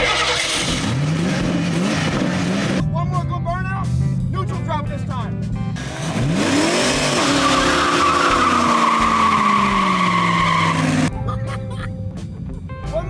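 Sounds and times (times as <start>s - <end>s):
tires squealing: 0.0s - 2.8s, 5.8s - 11.1s
car engine revving: 0.0s - 11.2s.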